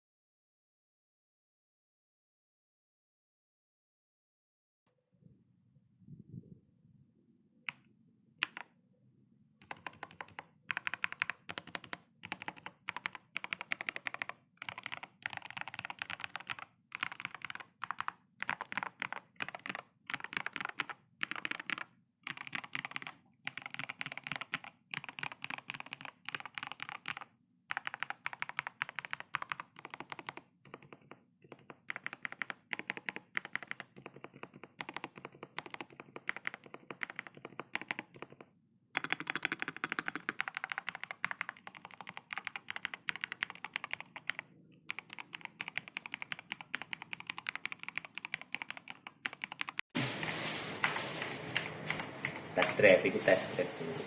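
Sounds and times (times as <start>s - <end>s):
mechanical keyboard typing: 8.4s - 8.7s, 9.6s - 49.9s.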